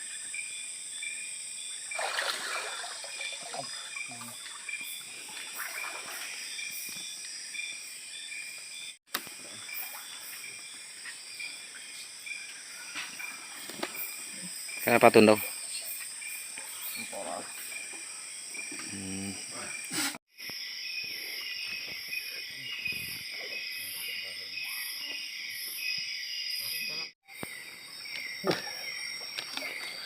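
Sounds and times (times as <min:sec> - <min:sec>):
insects buzzing: 0:00.0 - 0:30.0
rush of rustling or water: 0:01.9 - 0:06.4.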